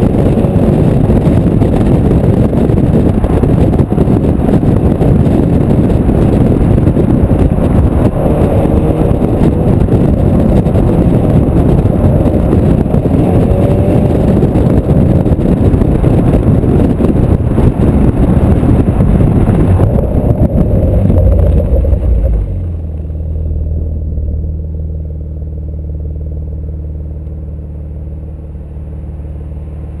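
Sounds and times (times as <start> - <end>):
car engine revving loudly: 0.0 - 22.8.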